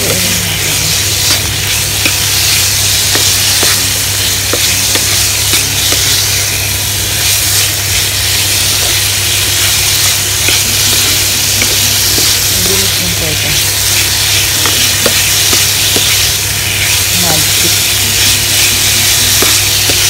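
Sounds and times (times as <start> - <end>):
chicken sizzling in oil: 0.0 - 20.0
steady low hum: 0.0 - 20.0
spatula scraping pan: 7.2 - 20.0.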